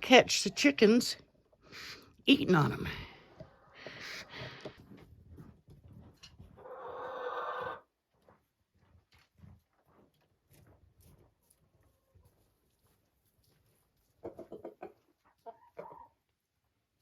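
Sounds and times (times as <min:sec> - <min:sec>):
chickens pecking and scratching: 0:03.3 - 0:07.8, 0:08.7 - 0:17.0
harsh chicken call: 0:06.6 - 0:07.8.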